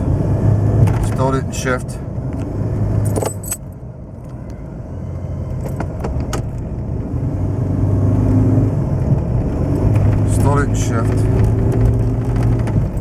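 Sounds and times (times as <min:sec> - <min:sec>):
light clicks or jingles: 0:03.0 - 0:03.7.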